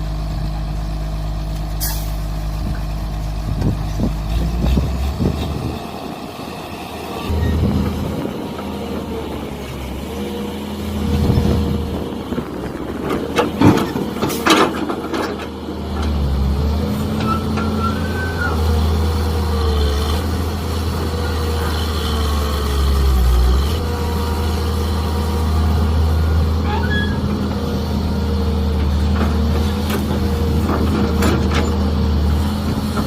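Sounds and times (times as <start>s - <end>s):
diesel engine droning: 0.0s - 33.0s
excavator bucket clanks and scrapes: 11.0s - 18.5s, 26.6s - 27.6s, 28.7s - 33.0s.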